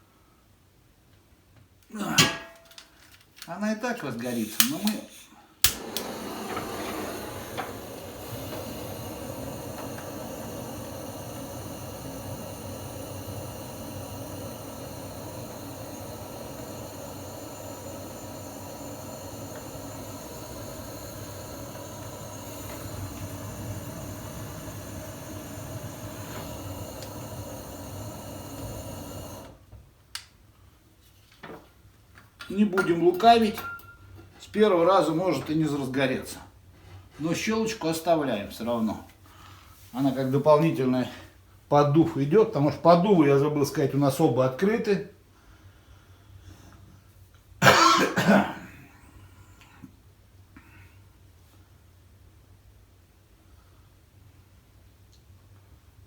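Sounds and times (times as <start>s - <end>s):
wood fire hissing: 4.1s - 29.8s, 37.0s - 49.9s
fire crackles: 5.6s - 29.6s.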